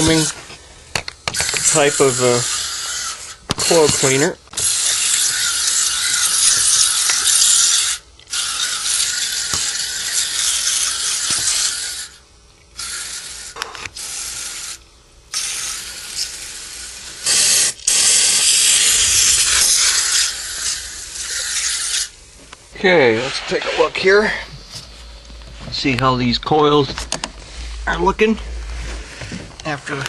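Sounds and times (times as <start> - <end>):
aerosol can spraying foam: 15.4 - 22.2.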